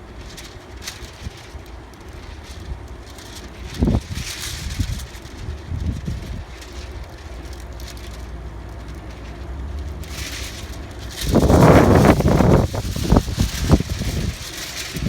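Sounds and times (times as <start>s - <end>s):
low outdoor rumble: 0.0s - 15.0s
loud rushing noise: 10.2s - 15.0s.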